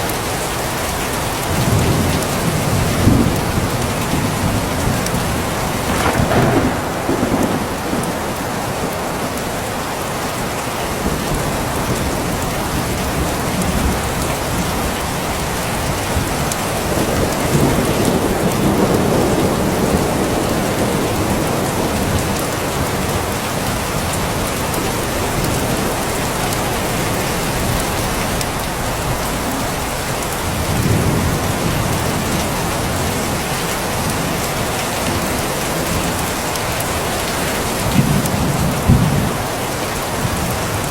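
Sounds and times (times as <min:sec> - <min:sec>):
rain falling: 0:00.0 - 0:40.9
thunder rumbling: 0:01.5 - 0:40.9.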